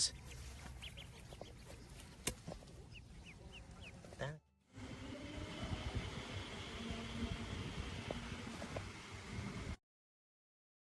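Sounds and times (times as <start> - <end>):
ducklings peeping: 0.0 - 4.4.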